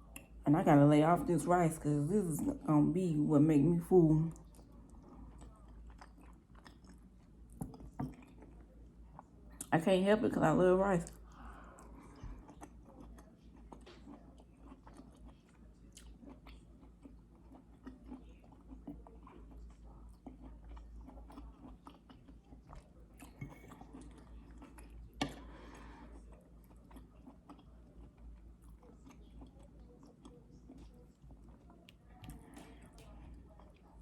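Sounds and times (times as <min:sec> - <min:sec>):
person chewing food: 0:04.3 - 0:09.7, 0:11.0 - 0:34.0.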